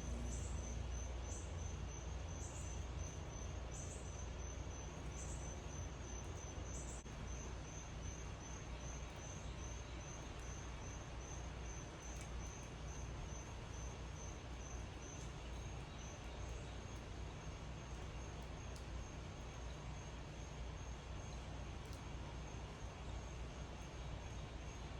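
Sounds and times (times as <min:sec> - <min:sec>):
insect chirping: 0:00.0 - 0:18.4
low background rumble and hiss: 0:00.0 - 0:24.9.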